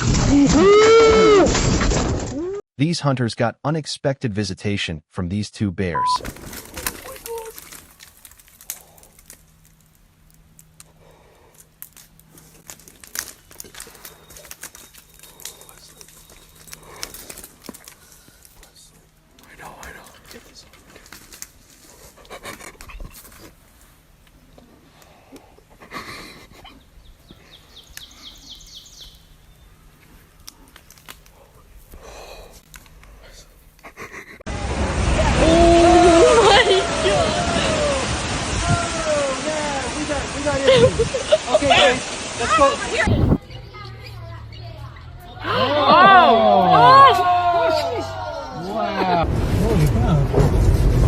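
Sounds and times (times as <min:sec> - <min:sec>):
crackling clicks: 0:06.2 - 0:21.7, 0:30.0 - 0:31.4, 0:32.6 - 0:33.9
rustling: 0:06.2 - 0:25.1
bird chirping rapidly: 0:26.8 - 0:29.8.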